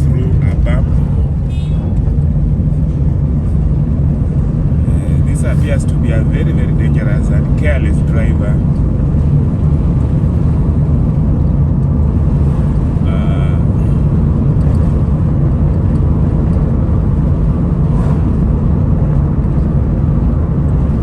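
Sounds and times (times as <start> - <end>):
car road and engine rumble: 0.0 - 21.0
car horn blast: 1.4 - 2.0.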